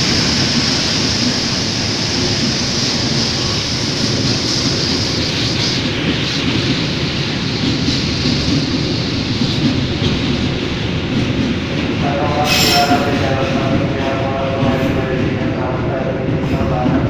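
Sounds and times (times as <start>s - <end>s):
train wheels rumbling on track: 0.0s - 17.0s
sustained pitched tone: 12.4s - 13.5s.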